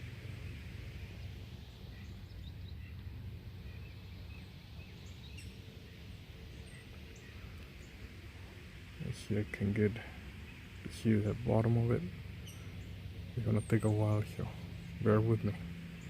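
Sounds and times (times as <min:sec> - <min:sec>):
birds chirping faintly: 0:00.0 - 0:16.0
steady low rumble: 0:00.0 - 0:16.0.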